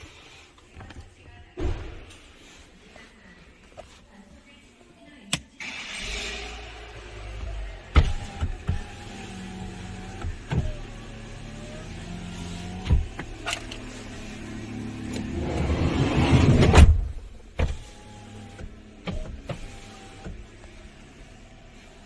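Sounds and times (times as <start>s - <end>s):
power window motor whining: 6.4s - 22.0s
loud rushing noise: 15.3s - 17.0s.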